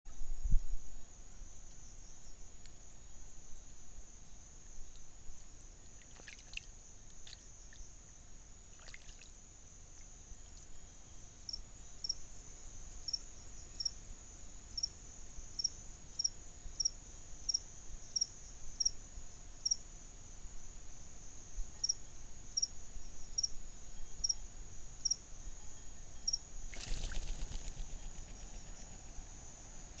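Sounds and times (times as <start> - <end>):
insects trilling: 4.2 - 14.0, 21.3 - 30.0.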